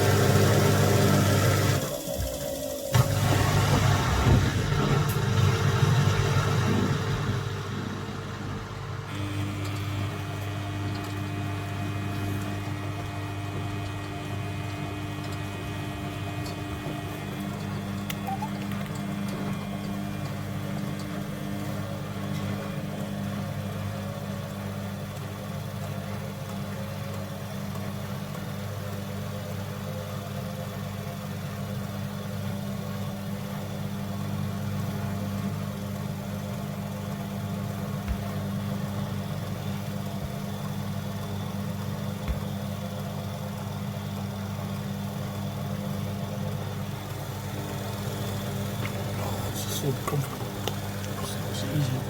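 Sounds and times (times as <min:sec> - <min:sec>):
washing machine humming: 0:00.0 - 0:52.0.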